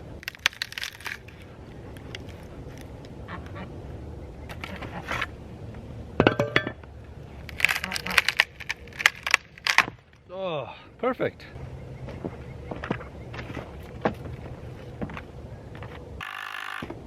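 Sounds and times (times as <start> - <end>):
wood being split: 0.1 - 2.4, 7.5 - 10.2.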